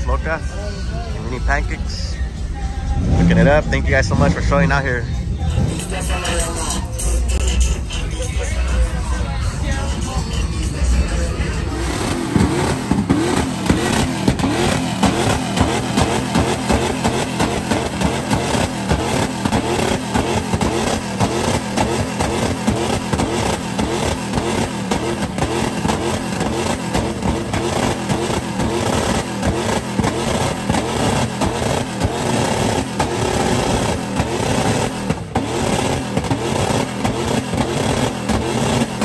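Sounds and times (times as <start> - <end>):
loud vehicle engine: 0.0 - 39.0.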